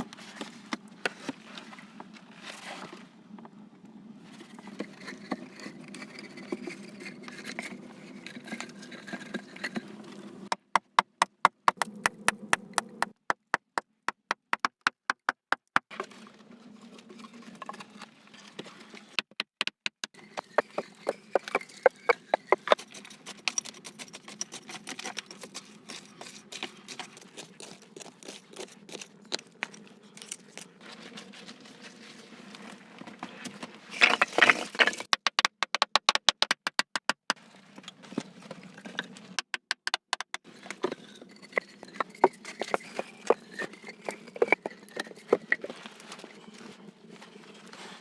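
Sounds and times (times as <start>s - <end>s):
sharp knocks and clicks: 10.5s - 15.8s, 19.2s - 22.8s, 35.0s - 37.4s, 39.4s - 40.4s.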